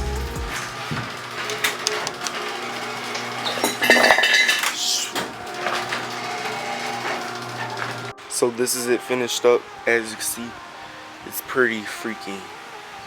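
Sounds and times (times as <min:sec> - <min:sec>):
metal parts clinking and clanking: 0:01.3 - 0:08.1.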